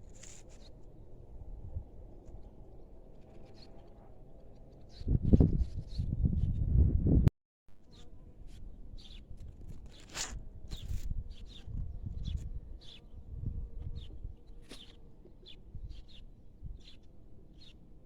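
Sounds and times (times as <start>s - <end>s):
wind rumble on microphone: 0.0s - 7.3s, 8.4s - 14.8s, 15.5s - 17.4s
small birds chirping: 3.2s - 6.6s, 7.8s - 17.9s.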